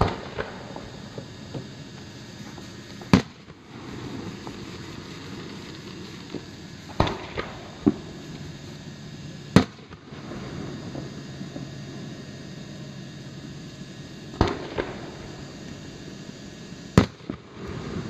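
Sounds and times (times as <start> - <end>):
fireworks bangs: 0.0 - 1.7, 2.4 - 8.5, 9.5 - 11.7, 14.3 - 15.6, 16.9 - 18.0
faint fireworks pops: 0.0 - 8.8, 9.4 - 11.8, 14.3 - 15.8, 16.9 - 18.0.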